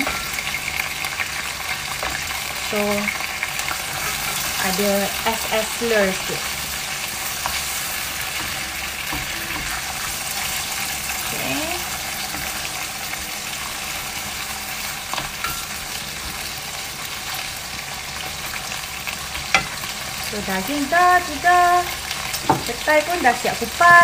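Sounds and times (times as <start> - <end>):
meat sizzling in a frying pan: 0.0 - 24.0.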